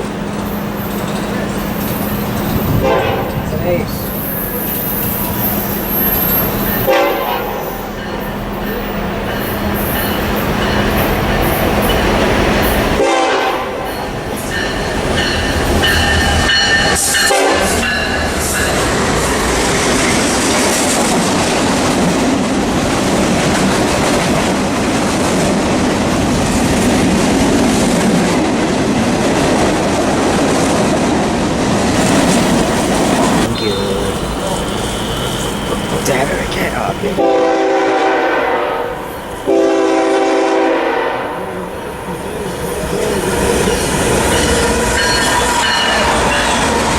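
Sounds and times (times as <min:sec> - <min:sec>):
train cars rumbling past: 0:00.0 - 0:46.9
train horn: 0:02.7 - 0:03.6, 0:05.6 - 0:08.1, 0:13.0 - 0:14.0, 0:17.0 - 0:17.8, 0:33.4 - 0:41.7.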